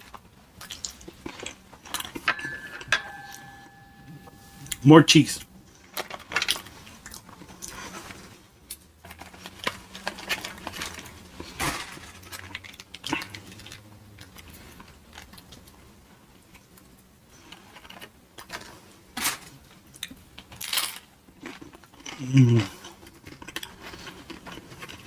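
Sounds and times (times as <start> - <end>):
chewing: 21.4 - 25.0.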